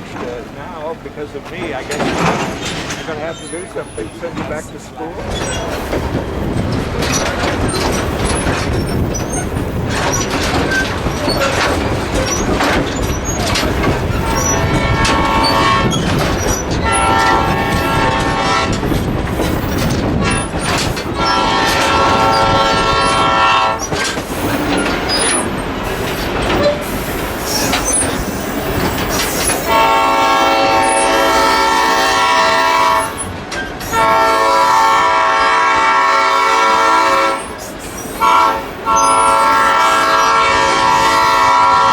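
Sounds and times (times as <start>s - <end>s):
train wheels clattering on rails: 0.0s - 41.9s
locomotive horn blasts: 14.0s - 19.0s, 21.0s - 23.9s, 29.6s - 33.3s, 33.9s - 41.9s.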